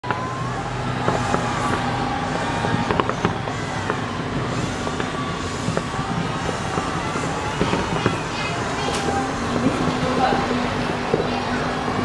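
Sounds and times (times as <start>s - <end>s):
noisy din: 0.0s - 12.0s
fireworks popping and banging: 1.0s - 12.0s.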